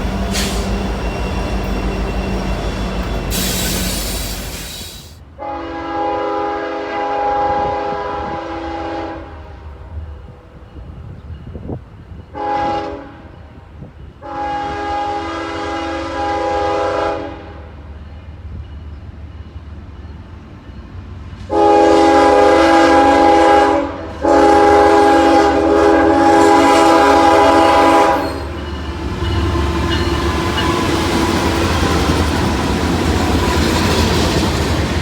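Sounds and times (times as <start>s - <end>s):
locomotive air horn chord: 0.0s - 9.4s, 12.4s - 13.3s, 14.2s - 17.5s, 21.5s - 28.6s
train rumble: 0.0s - 35.0s.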